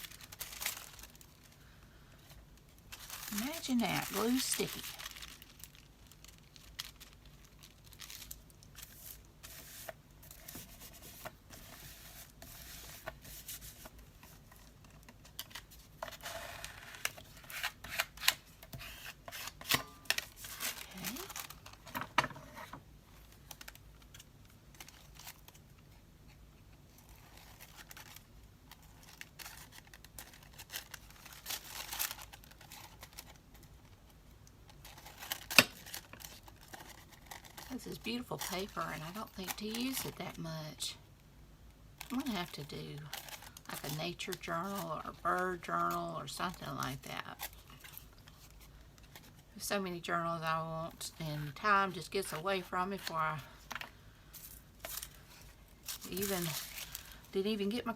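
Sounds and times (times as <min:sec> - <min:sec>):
paper rustling: 0:02.9 - 0:22.8, 0:34.8 - 0:40.1, 0:53.0 - 0:57.2.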